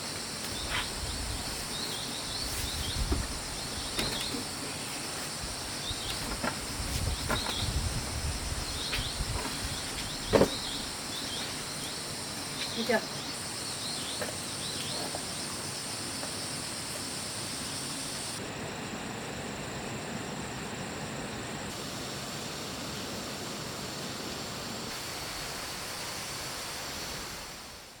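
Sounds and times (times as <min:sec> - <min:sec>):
constant hiss: 0:00.0 - 0:28.0
insects droning: 0:00.0 - 0:28.0.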